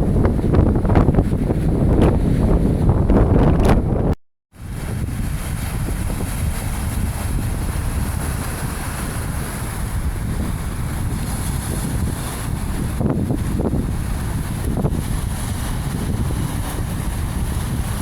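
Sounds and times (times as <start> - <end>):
wind buffeting microphone: 0.0 - 18.0
sea waves washing ashore: 4.6 - 18.0.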